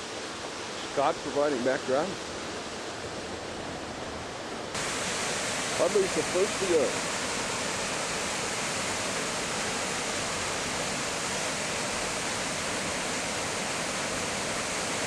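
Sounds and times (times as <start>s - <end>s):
water pouring over waterfall: 4.8s - 15.0s.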